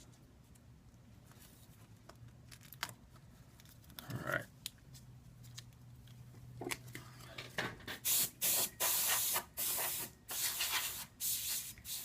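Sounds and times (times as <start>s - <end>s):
canned air duster hissing: 8.0s - 12.0s.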